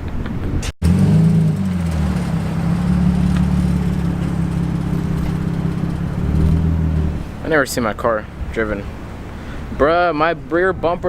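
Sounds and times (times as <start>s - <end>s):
car engine running at low revs: 0.8s - 9.2s.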